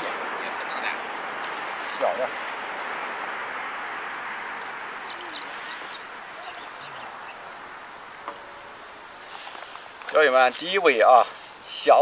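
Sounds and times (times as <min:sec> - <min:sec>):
steady outdoor hiss: 0:00.0 - 0:12.0
high bird chirps: 0:04.6 - 0:07.8.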